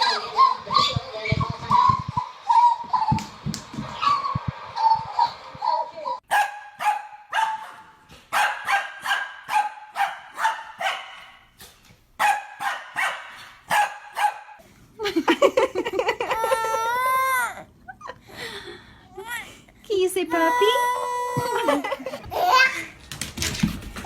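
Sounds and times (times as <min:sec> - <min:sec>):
dog barking: 0:06.3 - 0:11.5, 0:12.2 - 0:14.6.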